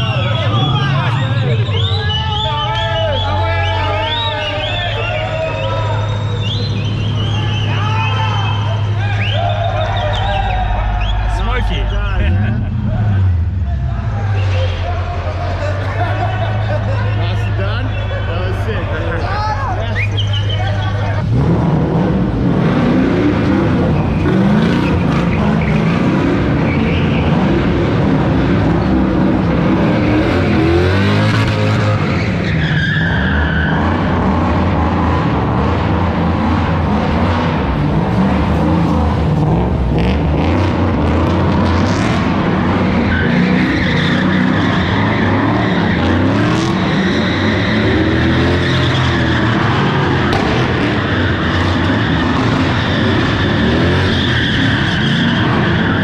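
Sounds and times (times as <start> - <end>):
tyre squeal and skidding: 0.0 - 12.2, 14.1 - 21.2, 23.8 - 27.6, 29.8 - 34.6, 41.8 - 56.0
car engine revving: 2.7 - 56.0.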